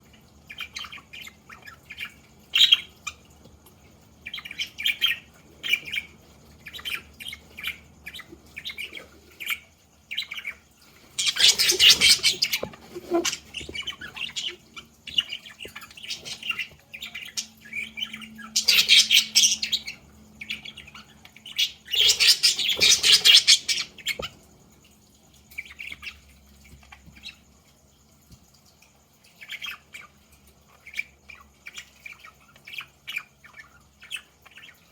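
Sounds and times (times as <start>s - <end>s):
budgerigars chirping: 0.5s - 3.2s, 4.2s - 24.3s.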